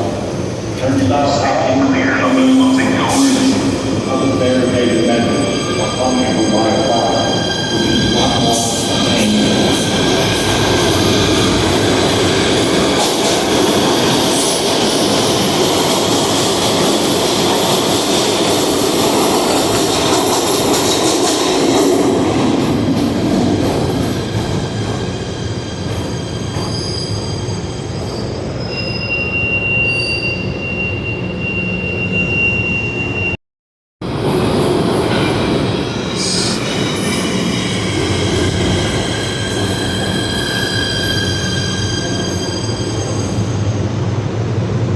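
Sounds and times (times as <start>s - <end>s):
train running through station: 0.0s - 33.4s, 34.0s - 44.9s
wheels squealing on rails: 23.9s - 33.4s, 34.2s - 43.9s.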